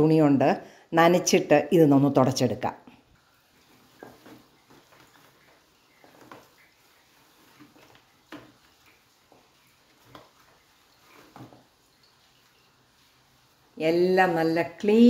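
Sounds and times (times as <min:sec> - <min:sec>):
cloth rubbing on appliance: 0:03.2 - 0:15.0.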